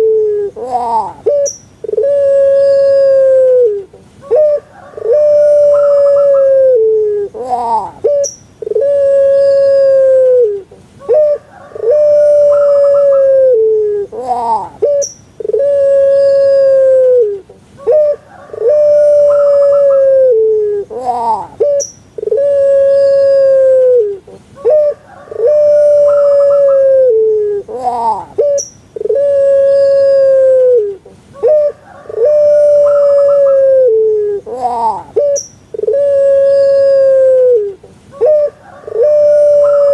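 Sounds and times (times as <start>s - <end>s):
dove calling: 0.0s - 39.9s.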